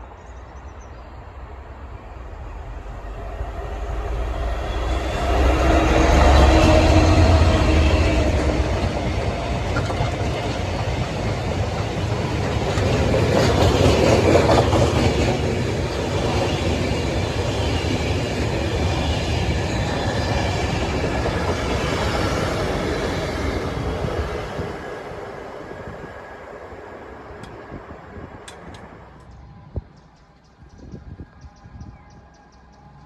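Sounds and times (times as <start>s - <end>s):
freight train passing: 0.0s - 30.7s
train wheel clatter: 4.8s - 29.3s.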